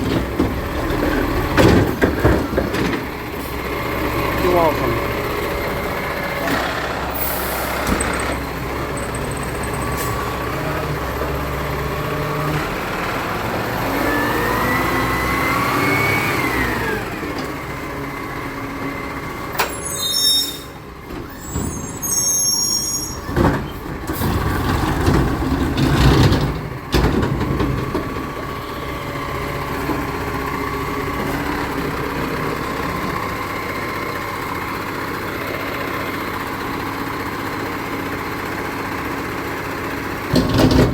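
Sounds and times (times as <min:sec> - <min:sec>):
heavy clunks: 0:00.0 - 0:03.2, 0:40.3 - 0:40.9
truck engine running: 0:00.0 - 0:19.9, 0:20.7 - 0:40.9
high squeals: 0:19.6 - 0:23.3.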